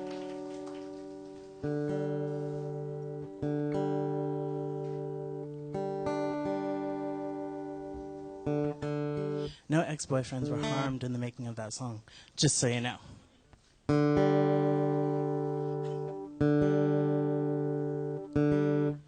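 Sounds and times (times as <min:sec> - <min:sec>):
acoustic guitar chords: 0:00.0 - 0:11.6, 0:13.6 - 0:19.0.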